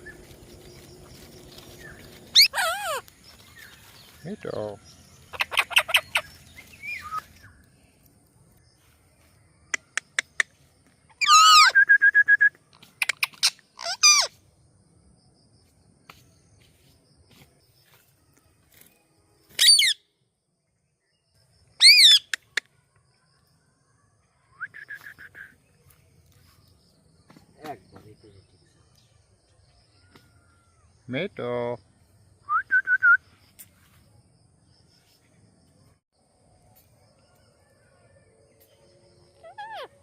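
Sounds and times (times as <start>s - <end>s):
parrot calls: 2.3s - 3.1s, 5.3s - 6.3s, 11.2s - 11.8s, 13.0s - 14.3s, 21.8s - 22.3s, 39.4s - 40.0s.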